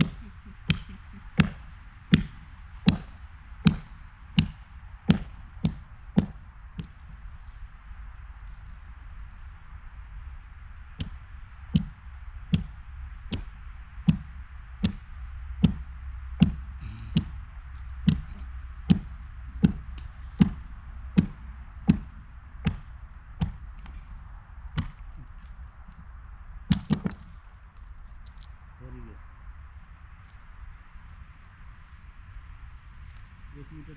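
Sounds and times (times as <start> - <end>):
sharp knocks: 0.0 - 7.0, 11.0 - 15.0, 15.6 - 17.4, 18.0 - 23.6, 26.7 - 27.3
low rumble: 0.0 - 33.9.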